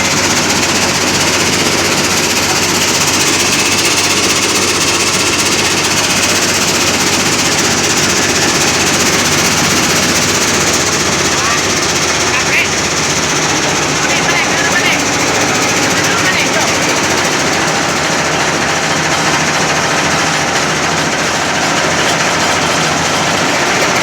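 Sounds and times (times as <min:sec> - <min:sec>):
stone-grinding machine rattling: 0:00.0 - 0:24.0.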